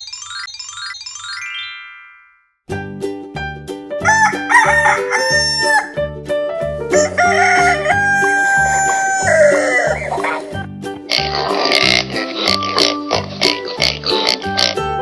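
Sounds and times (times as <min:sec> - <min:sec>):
upbeat children's music: 0:00.1 - 0:15.0
rooster crowing: 0:04.0 - 0:06.0, 0:07.0 - 0:10.1.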